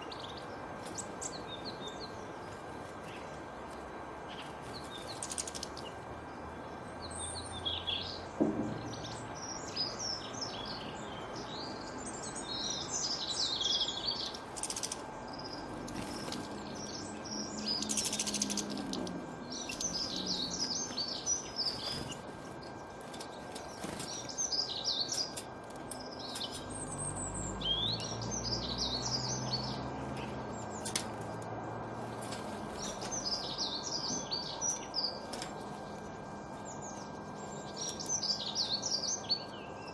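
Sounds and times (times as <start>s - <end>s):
faint steady hum: 0.0s - 39.9s
songbirds chirping: 0.0s - 39.9s.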